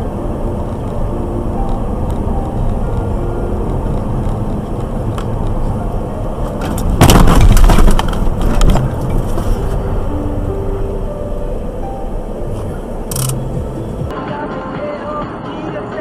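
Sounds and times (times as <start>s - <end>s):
car driving noise: 0.0s - 16.0s
debris clattering: 6.6s - 9.6s
vehicle collision crash: 6.6s - 9.8s.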